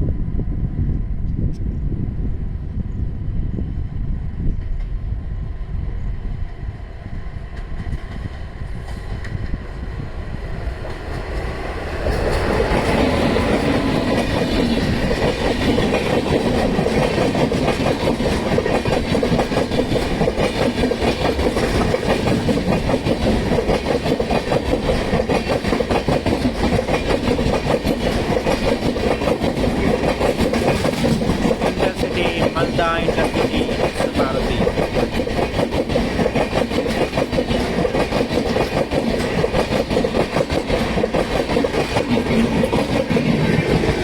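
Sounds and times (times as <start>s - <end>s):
train wheels clattering over rails: 10.7s - 44.0s.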